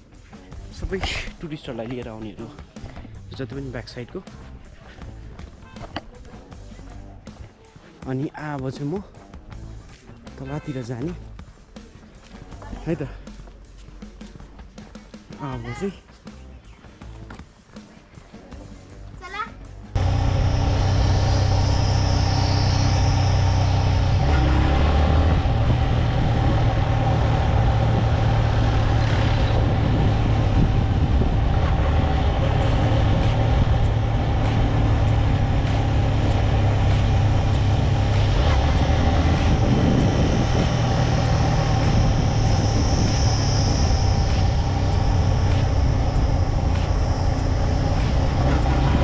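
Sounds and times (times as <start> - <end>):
wind and road noise: 0.0 - 14.6, 18.4 - 49.0
motorcycle engine running: 19.9 - 49.0.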